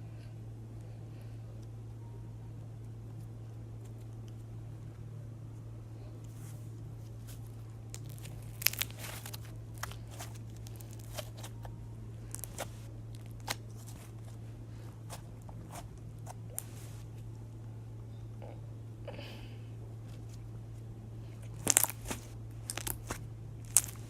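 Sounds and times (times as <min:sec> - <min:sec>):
slime squeezed crackling pops: 0:07.9 - 0:11.6, 0:12.3 - 0:14.1, 0:21.4 - 0:24.0.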